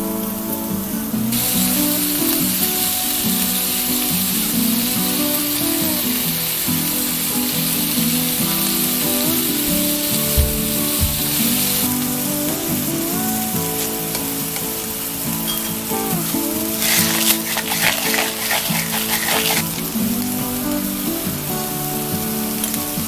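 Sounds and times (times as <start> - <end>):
meat sizzling in a pan: 0.1 - 23.0
chopsticks stirring meat: 16.8 - 19.8.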